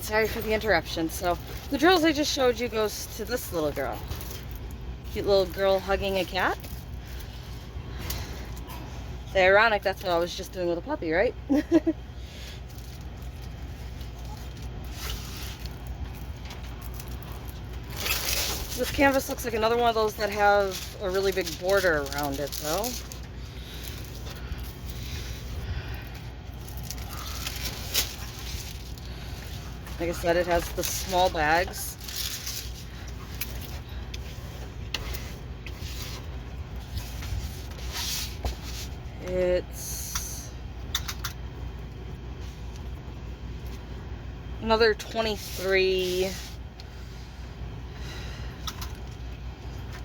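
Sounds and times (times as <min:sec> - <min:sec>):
steady low hum: 0:00.0 - 0:50.0
packaging rustling and scratching: 0:12.7 - 0:39.0.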